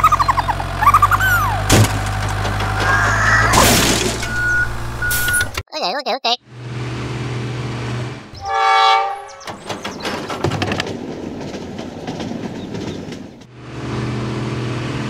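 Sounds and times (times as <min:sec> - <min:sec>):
train clattering on rails: 0:00.0 - 0:05.6, 0:08.4 - 0:15.0
train horn: 0:08.4 - 0:09.5.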